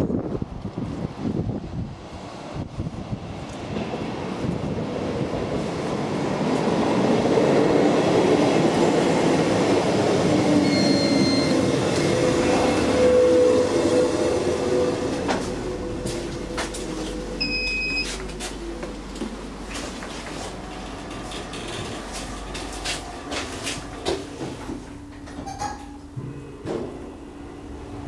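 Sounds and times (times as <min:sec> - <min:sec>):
train rumbling past: 0:00.0 - 0:17.4, 0:18.2 - 0:28.0
short electronic beep: 0:10.6 - 0:11.6, 0:17.4 - 0:18.1
train wheels squealing: 0:10.6 - 0:12.3.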